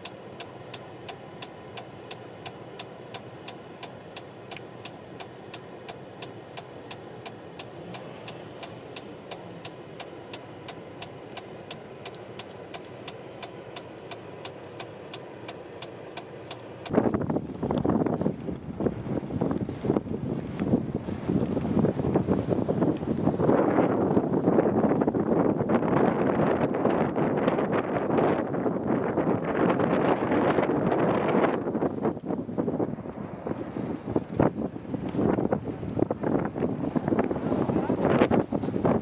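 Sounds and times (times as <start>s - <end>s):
indicator relay ticking: 0.0s - 17.0s
car engine idling: 0.0s - 21.1s
wind buffeting microphone: 16.9s - 39.0s.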